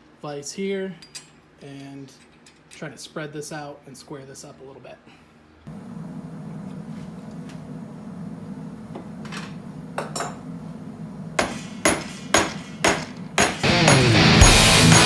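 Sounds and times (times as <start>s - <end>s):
low hum: 5.7s - 15.0s
hammer striking steel: 11.4s - 15.0s
rock music with electric guitar: 13.6s - 15.0s.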